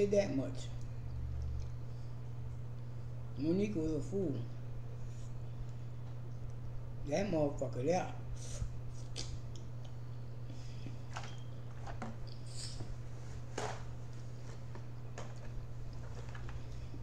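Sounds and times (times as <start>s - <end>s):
steady low hum: 0.0s - 17.0s
chewing with wet clicks: 0.7s - 2.9s, 5.6s - 6.8s, 9.1s - 10.2s.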